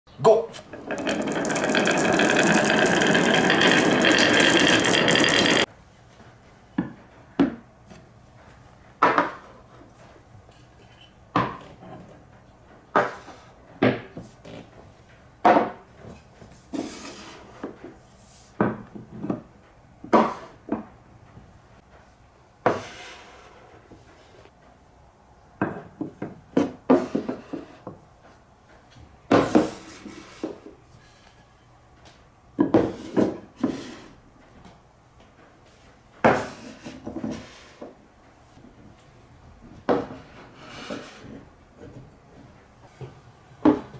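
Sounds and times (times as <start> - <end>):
marbles rolling and clattering: 0.7 - 5.7
marbles clacking on track: 0.8 - 5.7.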